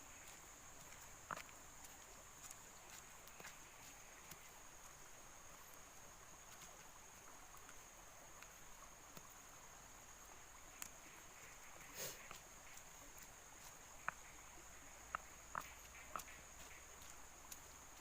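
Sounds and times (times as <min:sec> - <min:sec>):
faint clicks: 0:10.7 - 0:11.5, 0:15.1 - 0:17.8.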